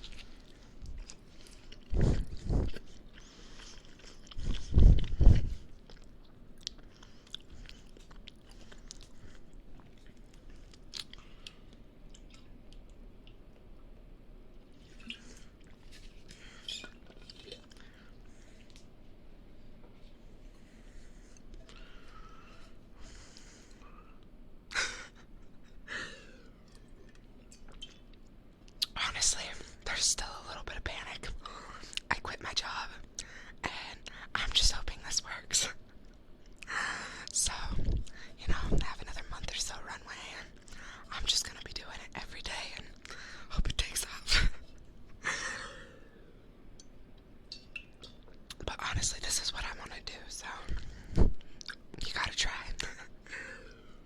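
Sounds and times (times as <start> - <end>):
chewing with wet mouth clicks: 0.0 - 5.2, 5.8 - 13.8, 14.8 - 18.0, 26.6 - 29.0, 46.8 - 48.6, 50.7 - 52.0.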